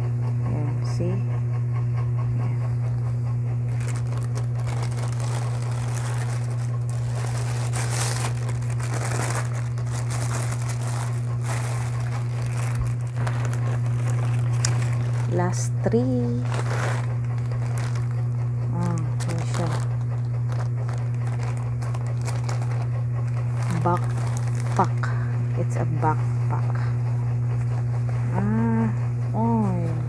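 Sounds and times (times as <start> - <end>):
steady low hum: 0.0 - 30.0
plastic crinkling and rustling: 3.7 - 25.1.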